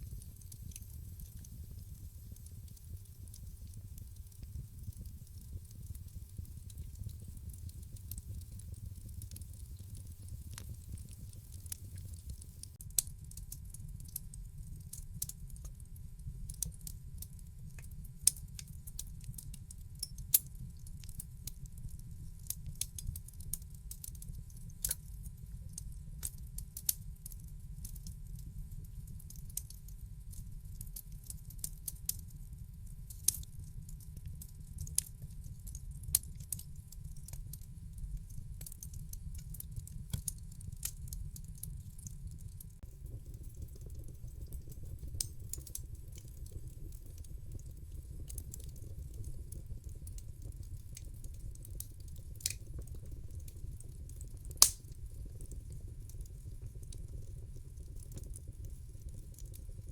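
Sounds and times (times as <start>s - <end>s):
wood fire crackling: 0.0s - 15.9s, 35.7s - 59.9s
loud fire pops: 0.1s - 12.8s, 42.9s - 55.6s.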